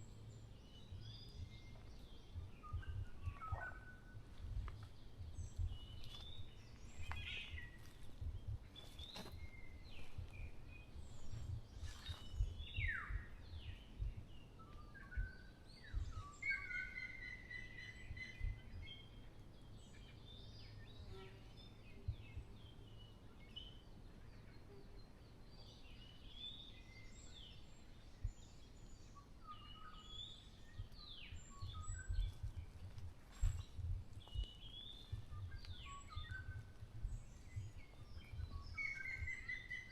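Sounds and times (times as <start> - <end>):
forest birds chirping: 0.0 - 39.9
wind rumble on microphone: 0.0 - 39.9.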